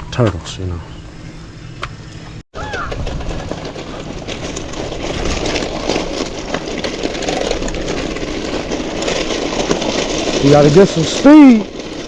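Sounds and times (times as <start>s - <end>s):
bicycle rattling over trail: 2.6s - 12.0s.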